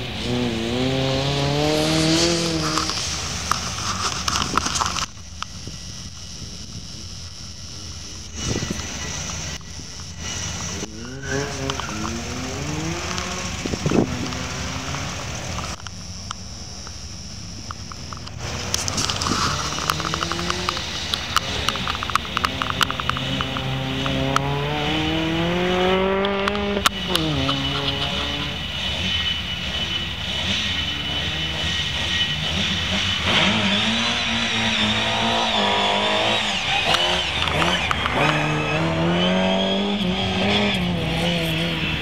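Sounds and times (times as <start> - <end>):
rally car engines revving: 0.0 - 42.0.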